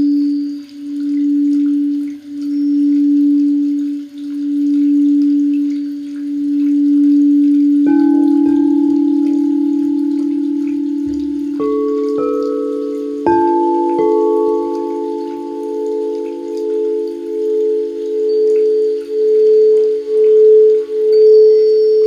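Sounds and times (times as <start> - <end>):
singing bowl humming: 0.0 - 22.0
singing bowl struck ringing: 6.8 - 22.0.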